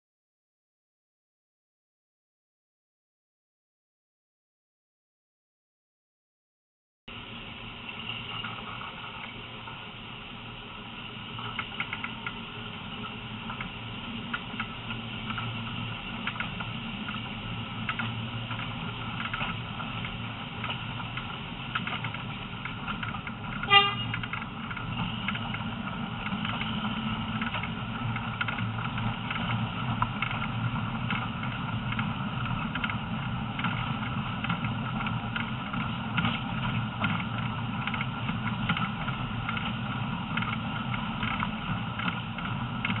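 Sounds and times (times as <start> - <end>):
train rumbling on track: 7.1 - 43.0
train horn toot: 23.6 - 24.2.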